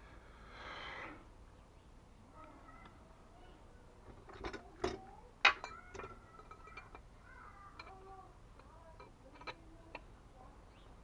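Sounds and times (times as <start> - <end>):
metal parts clicking and knocking: 4.1 - 7.1, 7.7 - 10.1.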